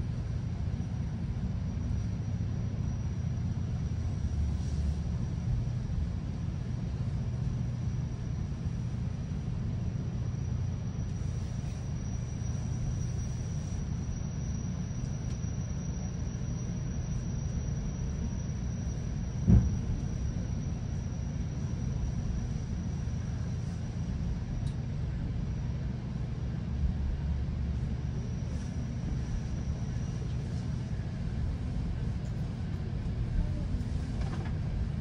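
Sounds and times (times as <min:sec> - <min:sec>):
train coach rumble: 0:00.0 - 0:35.0
sharp low thump: 0:19.5 - 0:20.0.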